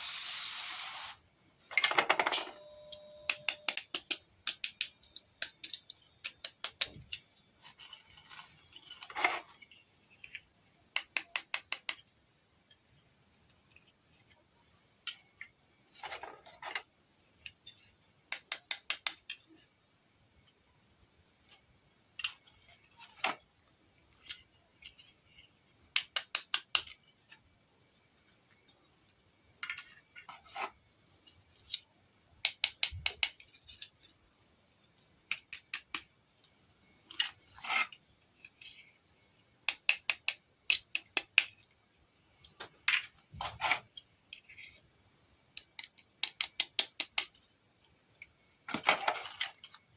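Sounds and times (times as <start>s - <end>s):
toy pieces scraping and rubbing: 0.0s - 1.2s, 3.8s - 12.0s, 22.2s - 27.5s, 29.6s - 31.9s, 32.6s - 34.3s, 36.9s - 45.0s, 48.7s - 49.9s
plastic toy pieces clicking: 3.3s - 7.3s, 8.0s - 12.1s, 18.3s - 19.6s, 25.9s - 27.0s, 31.6s - 34.0s, 35.3s - 36.1s, 39.6s - 41.8s, 45.5s - 47.5s.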